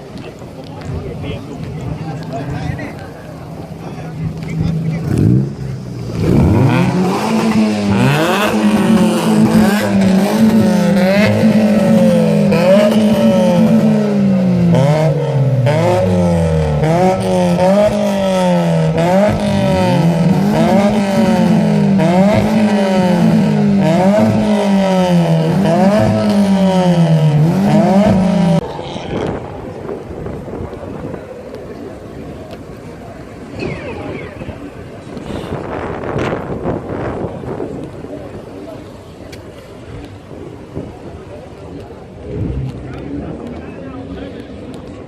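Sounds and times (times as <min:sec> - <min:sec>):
car engine revving: 0:02.0 - 0:30.5.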